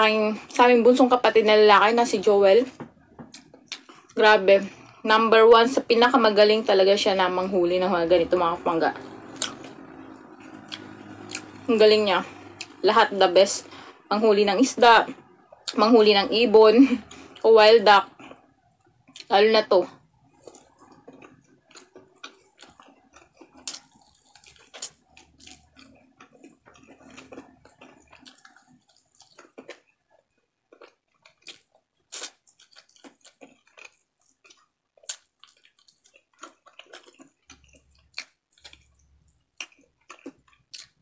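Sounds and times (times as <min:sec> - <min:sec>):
chewing with wet mouth clicks: 0:03.3 - 0:05.0, 0:09.0 - 0:11.7, 0:18.1 - 0:19.3, 0:20.2 - 0:41.0.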